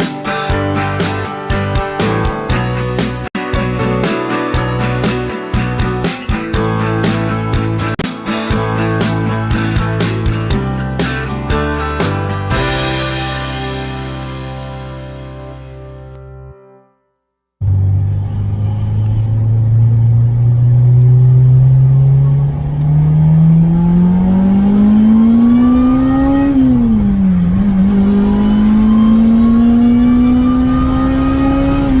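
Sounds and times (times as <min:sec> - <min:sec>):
car engine accelerating hard: 0:17.6 - 0:32.0.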